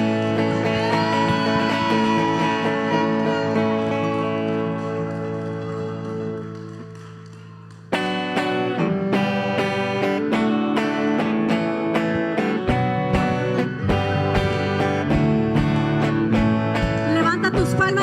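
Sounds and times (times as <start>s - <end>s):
guitar strumming chords: 0.0s - 18.0s.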